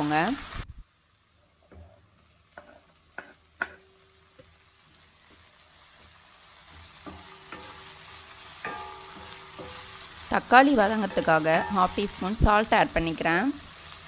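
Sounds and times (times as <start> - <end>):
vegetables sizzling in hot oil: 0.0 - 14.0
wooden spatula knocking pan: 1.7 - 4.5, 6.9 - 10.1.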